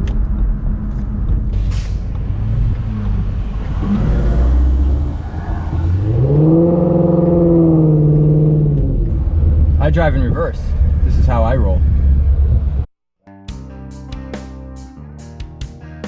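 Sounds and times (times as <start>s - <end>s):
car engine revving: 0.8s - 12.8s.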